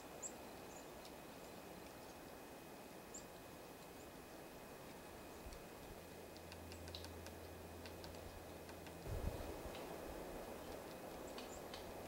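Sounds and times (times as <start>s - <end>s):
small birds chirping: 0.0s - 2.4s, 3.0s - 4.2s, 10.4s - 12.0s
low steady hum: 0.0s - 12.0s.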